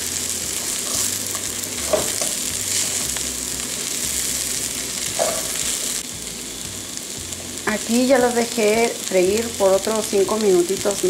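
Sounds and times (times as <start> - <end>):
food sizzling in fat: 0.0 - 11.0.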